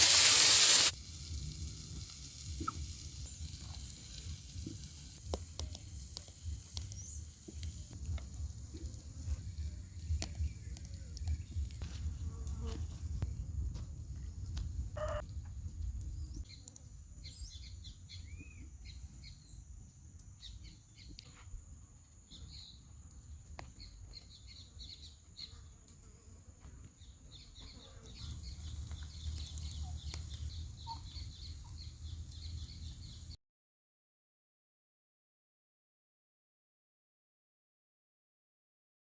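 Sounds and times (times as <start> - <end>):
birds chirping: 14.2 - 15.2, 27.0 - 33.3.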